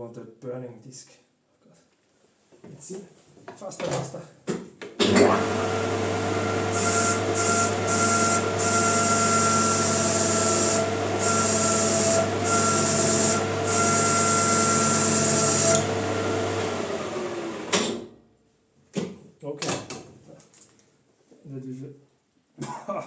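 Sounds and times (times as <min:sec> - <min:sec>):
lathe motor humming: 0:05.1 - 0:17.8.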